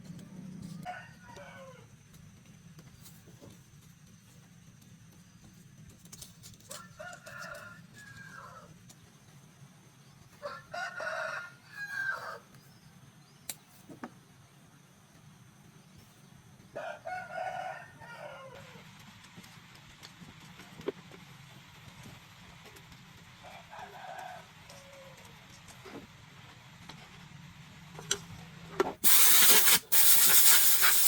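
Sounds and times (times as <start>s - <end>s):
rooster crowing: 0.8s - 1.9s, 6.7s - 8.7s, 10.4s - 12.5s, 16.8s - 18.8s.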